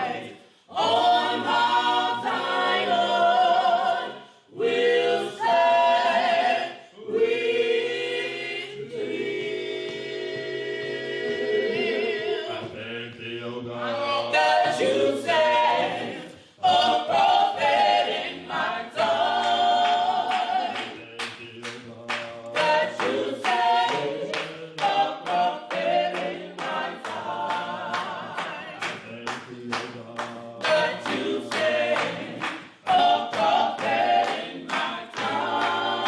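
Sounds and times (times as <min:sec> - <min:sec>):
gospel choir singing a cappella: 0:00.0 - 0:36.0
hands clapping a beat: 0:09.7 - 0:11.4, 0:16.6 - 0:36.0.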